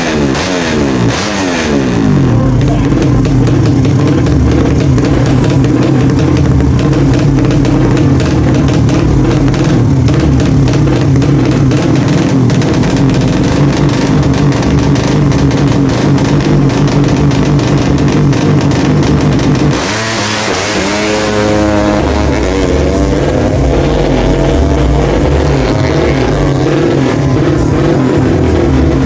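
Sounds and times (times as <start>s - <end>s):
motorcycle engine idling: 0.0s - 29.0s.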